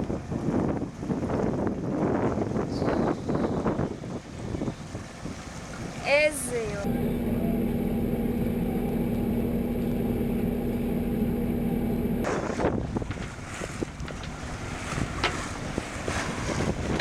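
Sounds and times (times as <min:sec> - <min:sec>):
wind: 0:00.0 - 0:17.0
boat engine humming: 0:04.0 - 0:17.0
water splashing: 0:04.2 - 0:06.9.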